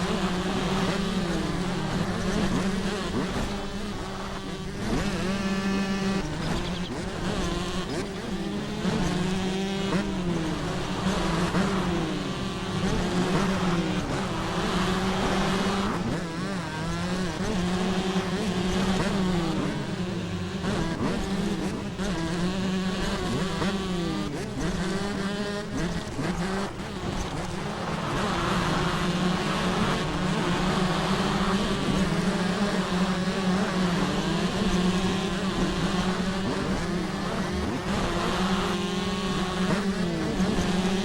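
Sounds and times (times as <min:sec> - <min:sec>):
motocross bike engines revving: 0:00.0 - 0:41.0.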